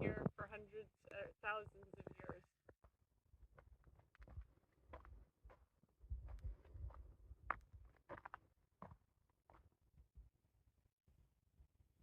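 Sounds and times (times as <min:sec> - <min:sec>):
soft low thumps: 0:06.0 - 0:07.6.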